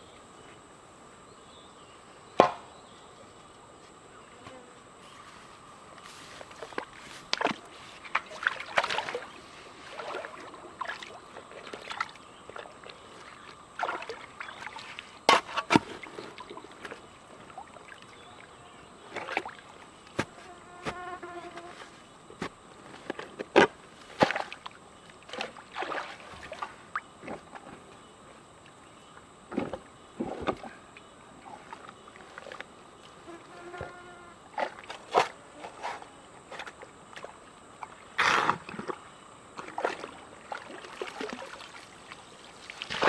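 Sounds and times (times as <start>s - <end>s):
high insect buzz: 18.1s - 22.2s, 33.0s - 43.0s.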